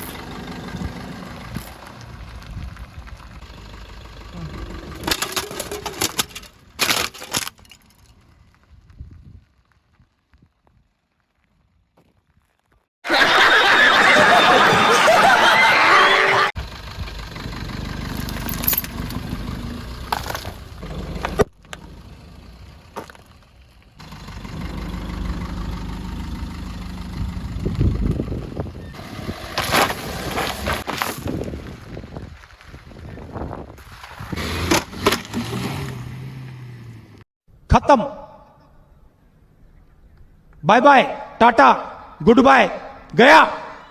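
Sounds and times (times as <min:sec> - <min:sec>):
car engine running: 0:00.0 - 0:07.2, 0:16.6 - 0:30.8
clay pots breaking under tyres: 0:04.9 - 0:08.1.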